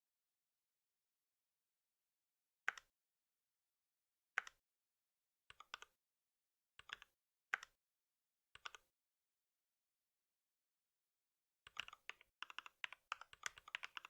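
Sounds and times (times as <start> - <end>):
keyboard keys clicking: 11.7 - 14.0.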